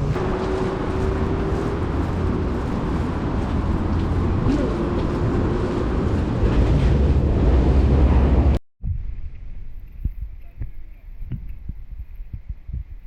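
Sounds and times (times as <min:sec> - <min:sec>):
low vehicle rumble: 0:00.0 - 0:10.0.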